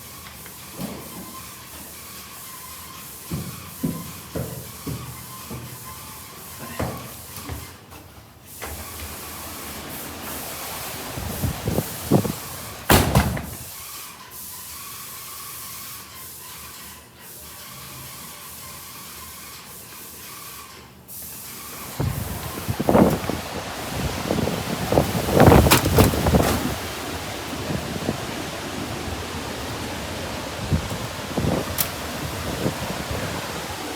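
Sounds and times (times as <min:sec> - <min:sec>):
heavy rain hissing: 0:08.6 - 0:13.8, 0:21.5 - 0:33.9
wind gusts buffeting microphone: 0:10.6 - 0:13.7, 0:21.9 - 0:33.9.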